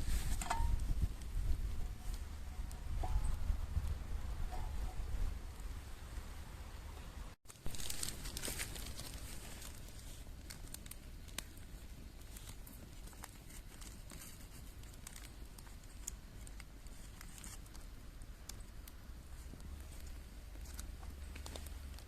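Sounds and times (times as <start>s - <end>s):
faint low rumble: 0.0s - 22.0s
campfire crackling and popping: 7.4s - 22.0s.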